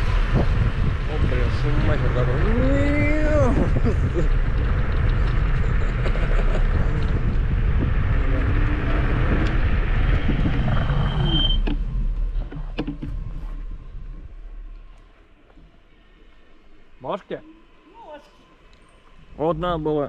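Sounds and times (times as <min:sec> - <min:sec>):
scooter rolling noise: 0:00.0 - 0:15.5
wind buffeting microphone: 0:00.0 - 0:15.9
short high squeak: 0:11.0 - 0:11.7.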